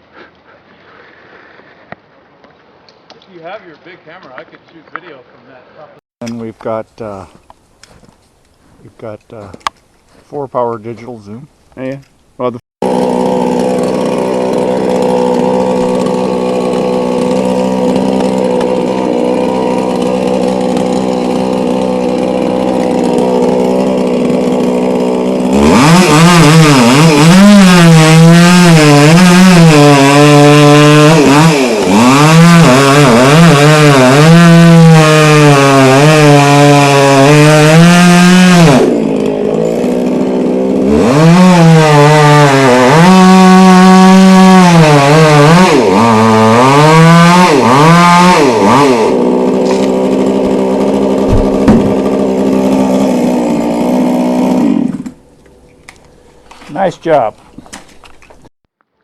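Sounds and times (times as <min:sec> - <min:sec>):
chainsaw idling and revving: 0:12.8 - 0:55.3.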